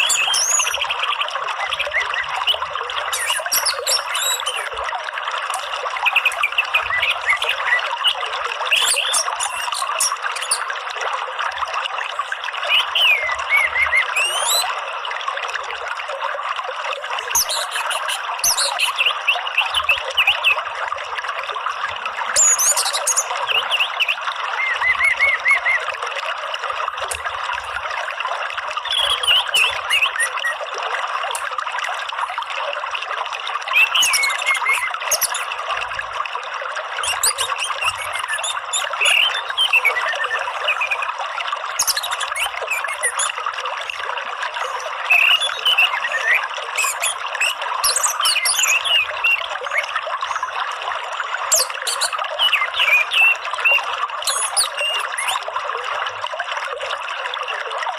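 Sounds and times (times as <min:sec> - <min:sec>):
bird chirps and calls: 0:00.0 - 0:04.8, 0:05.5 - 0:10.8, 0:12.6 - 0:14.8, 0:17.2 - 0:20.6, 0:22.4 - 0:25.9, 0:28.8 - 0:30.6, 0:33.7 - 0:35.5, 0:37.0 - 0:41.1, 0:41.8 - 0:43.4, 0:44.7 - 0:50.4, 0:51.5 - 0:55.4
water trickling: 0:00.0 - 0:57.9.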